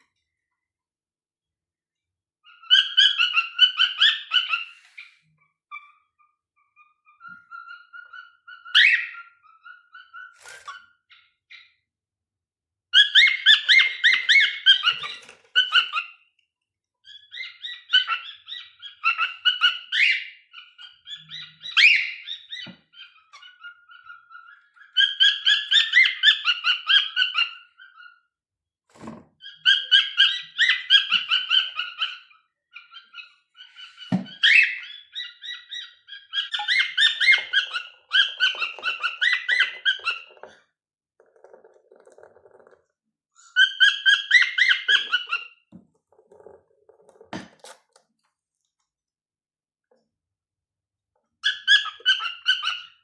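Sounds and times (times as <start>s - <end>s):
cockatiels warbling chirps: 2.5s - 6.1s, 6.8s - 11.8s, 13.0s - 16.3s, 17.0s - 28.2s, 29.4s - 40.6s, 43.4s - 45.7s, 51.4s - 53.0s.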